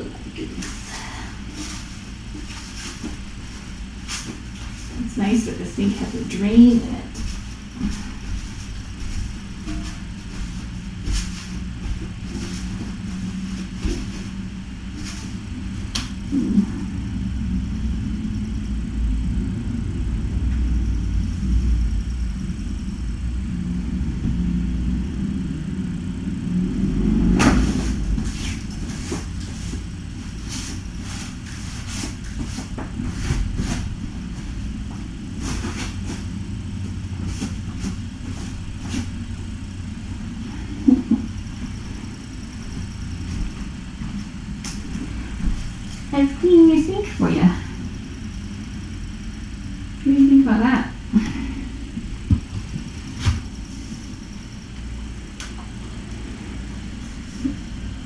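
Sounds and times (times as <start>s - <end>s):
scrubbing scrapes and knocks: 0.0s - 16.8s, 27.4s - 39.2s
steady low rumble: 0.0s - 58.0s.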